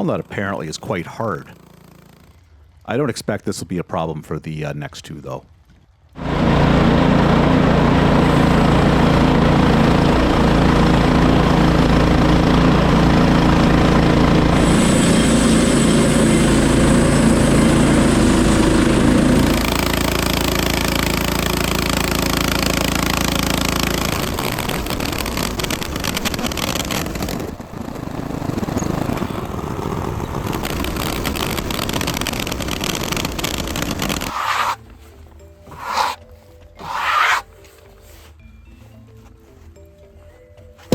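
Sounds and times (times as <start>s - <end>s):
small gas engine running: 0.0s - 2.8s, 6.1s - 38.9s
band saw cutting log: 6.2s - 27.1s, 30.6s - 34.9s, 35.7s - 37.6s.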